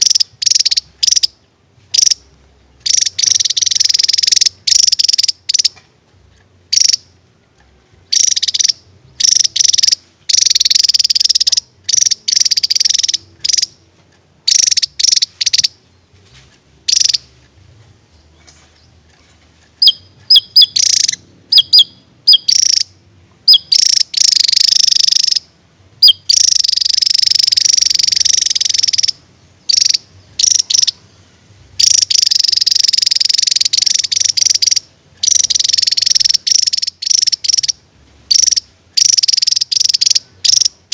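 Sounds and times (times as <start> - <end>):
bird singing high trills: 0.0 - 5.8, 6.7 - 7.2, 8.0 - 13.8, 14.4 - 16.3, 16.9 - 17.4, 19.8 - 40.9.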